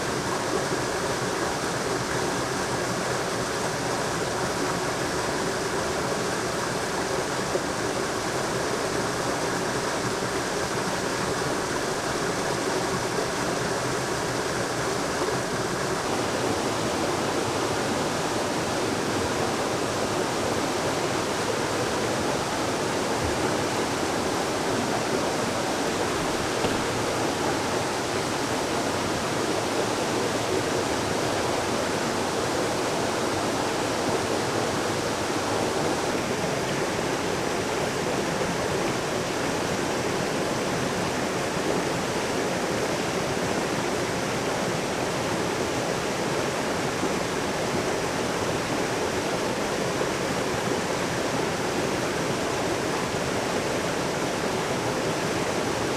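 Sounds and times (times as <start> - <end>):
water rushing: 0.0 - 42.3.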